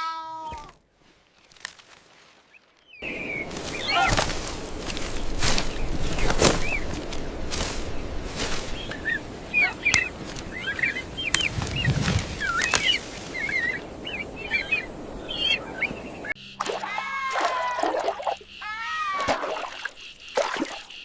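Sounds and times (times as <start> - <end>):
birds chirping and twittering: 2.4 - 21.0
steady rushing background noise: 3.0 - 16.3.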